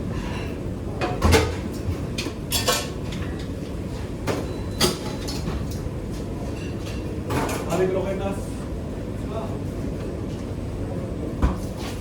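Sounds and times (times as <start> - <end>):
dishes and utensils clinking: 2.2 - 3.3.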